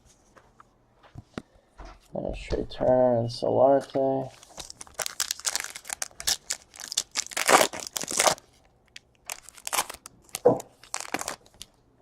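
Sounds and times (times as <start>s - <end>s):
cards rustling: 3.8s - 11.7s
wrapper crinkling and tearing: 4.3s - 11.8s.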